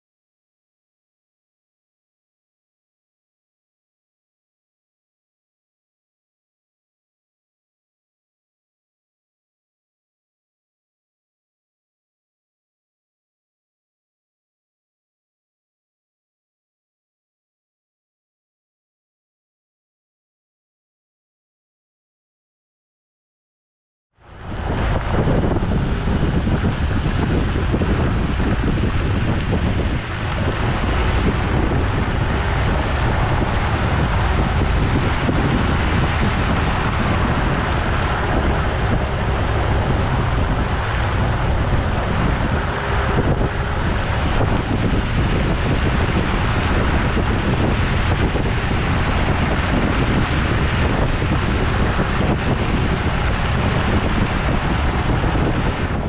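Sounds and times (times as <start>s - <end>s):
vehicle driving on dirt trail: 24.2s - 56.0s
wind rumbling on microphone: 24.2s - 56.0s.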